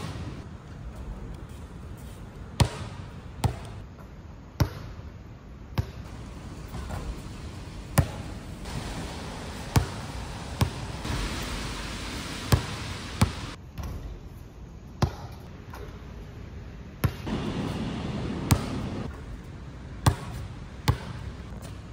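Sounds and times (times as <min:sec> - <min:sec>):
basketball bouncing: 0:00.0 - 0:00.5, 0:02.6 - 0:03.8, 0:04.6 - 0:05.0, 0:05.8 - 0:07.3, 0:07.9 - 0:10.9, 0:12.5 - 0:14.2, 0:15.0 - 0:16.0, 0:17.0 - 0:19.4, 0:20.0 - 0:21.8
wind: 0:00.0 - 0:21.9
rain: 0:06.1 - 0:13.6, 0:17.3 - 0:19.1.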